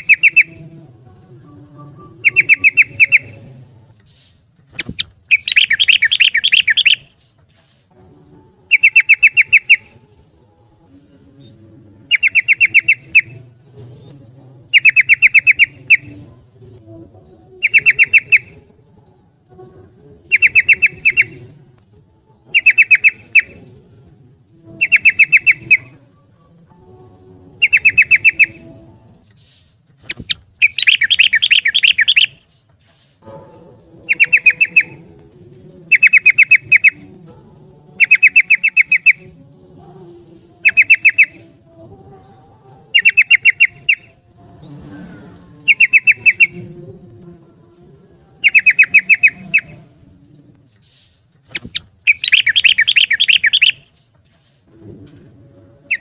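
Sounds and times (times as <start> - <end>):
bulbul rapid chattering song: 0.0 - 1.2, 2.0 - 3.5, 4.7 - 7.1, 8.7 - 10.0, 12.1 - 13.5, 14.7 - 16.2, 17.6 - 18.6, 20.3 - 21.4, 22.5 - 23.6, 24.8 - 26.0, 27.6 - 28.7, 30.0 - 32.4, 34.0 - 35.1, 35.8 - 37.2, 37.9 - 39.4, 40.6 - 41.6, 42.9 - 44.2, 45.6 - 46.8, 48.3 - 49.8, 51.4 - 53.9.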